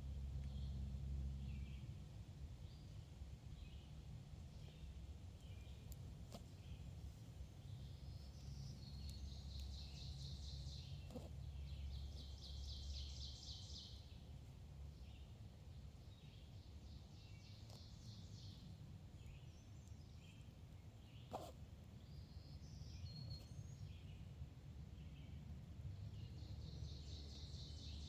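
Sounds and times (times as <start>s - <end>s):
faint low rumble: 0.0s - 21.1s
wild birds singing: 2.6s - 28.0s.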